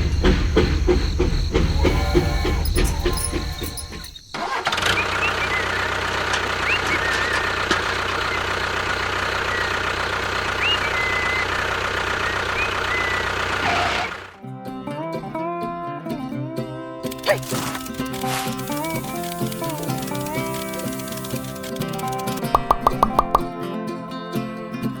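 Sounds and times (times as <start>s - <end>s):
short high squeaks: 1.8s - 8.4s, 17.1s - 23.5s
small motor running: 1.8s - 14.4s, 17.1s - 23.4s.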